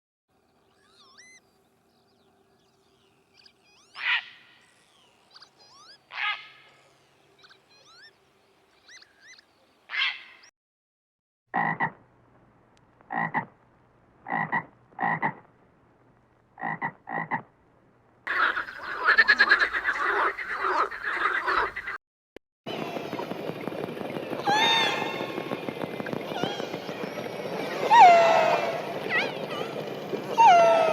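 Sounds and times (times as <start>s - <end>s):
faint whistling glides: 0.6s - 9.6s, 22.7s - 30.9s
frogs croaking: 0.6s - 10.4s, 13.1s - 13.5s, 14.2s - 15.5s, 16.6s - 17.5s, 18.3s - 22.0s.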